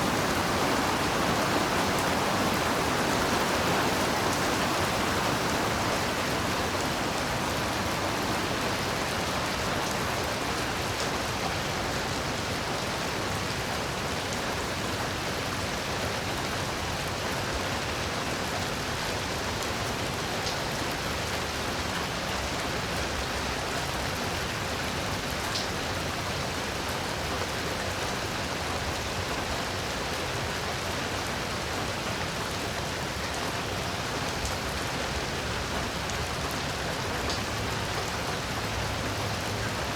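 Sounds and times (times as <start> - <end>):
heavy rain hiss: 0.0 - 14.8.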